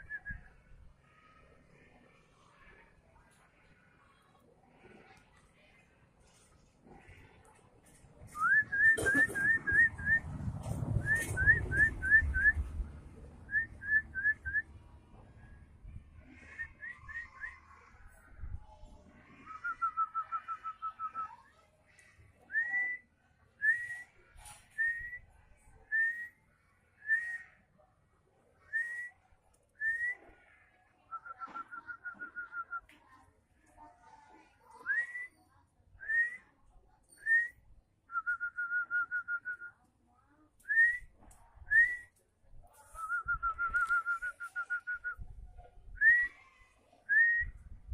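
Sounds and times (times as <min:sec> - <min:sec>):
low rumbling noise: 0:08.1 - 0:16.9.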